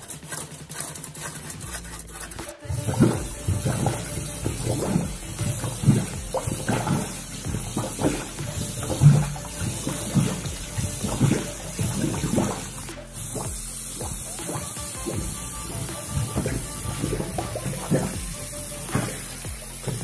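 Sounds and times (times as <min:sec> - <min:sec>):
water gurgling in a sink: 0:00.0 - 0:20.0.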